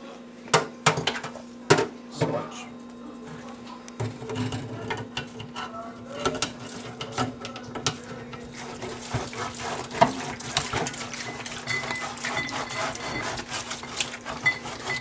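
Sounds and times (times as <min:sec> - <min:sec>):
sponge scrubbing metal basket: 0:06.1 - 0:15.0.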